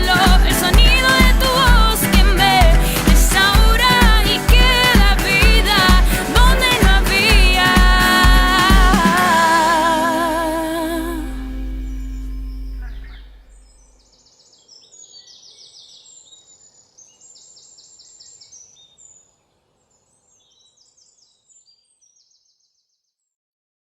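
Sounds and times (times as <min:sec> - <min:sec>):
birds trilling: 0:11.5 - 0:14.4.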